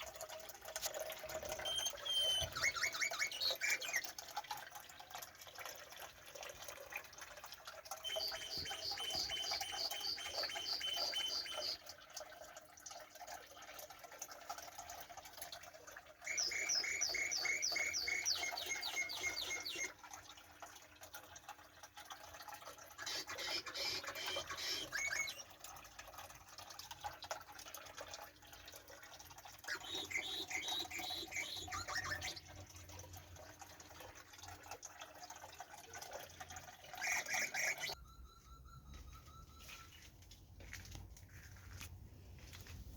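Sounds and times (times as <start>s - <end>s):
songbird trilling: 8.0s - 11.8s, 16.3s - 19.9s, 29.7s - 32.4s.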